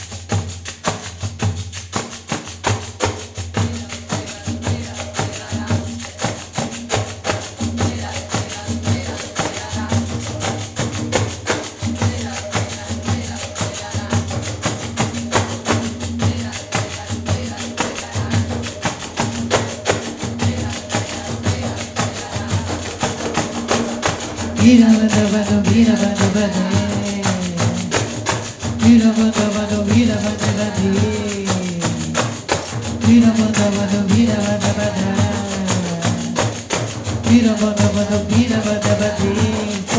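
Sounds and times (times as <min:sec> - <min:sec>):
pandeiros playing fast rhythm: 0:00.0 - 0:39.9.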